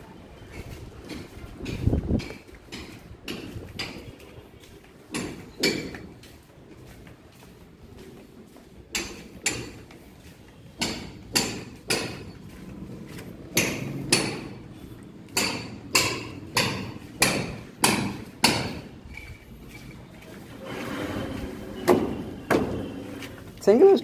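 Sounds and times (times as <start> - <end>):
hammer strikes ringing: 10.8 - 12.4, 15.3 - 19.0.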